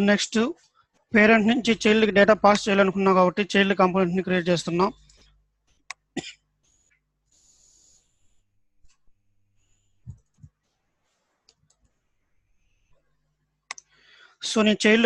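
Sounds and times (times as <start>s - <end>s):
soft low thumps: 10.0s - 10.5s.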